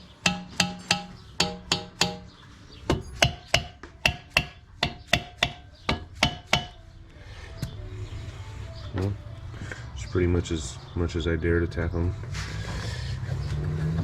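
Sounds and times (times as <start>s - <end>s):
hammer tapping on metal: 0.1s - 6.8s.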